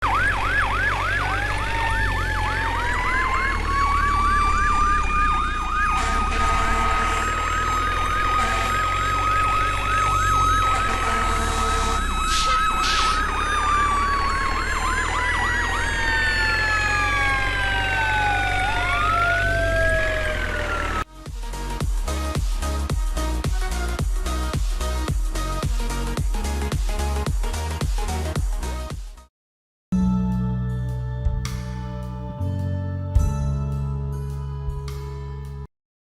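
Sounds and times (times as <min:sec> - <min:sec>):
siren wail: 0:00.0 - 0:21.1
siren yelp: 0:00.0 - 0:21.1.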